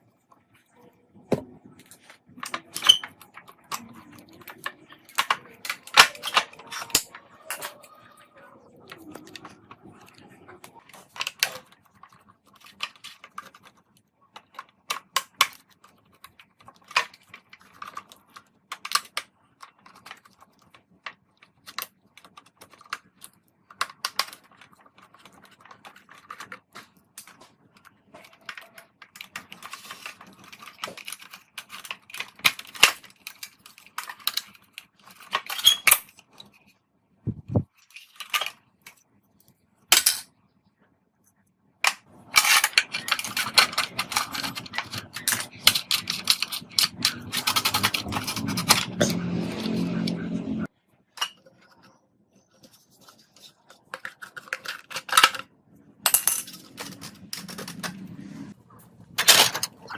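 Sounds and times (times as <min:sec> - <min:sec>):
small hard parts clicking: 0:41.9 - 0:49.2.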